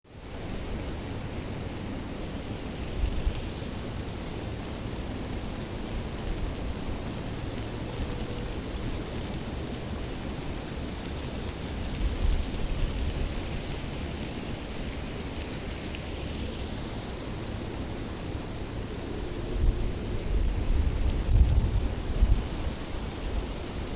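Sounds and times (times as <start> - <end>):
steady rushing outdoor noise: 0.1 - 23.9
wind buffeting microphone: 16.6 - 23.9.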